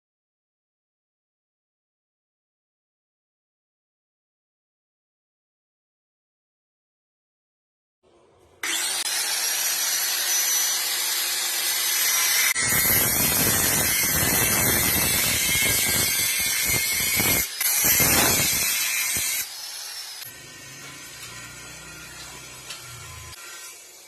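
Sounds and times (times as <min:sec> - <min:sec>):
power tool whining on metal: 0:08.6 - 0:24.0.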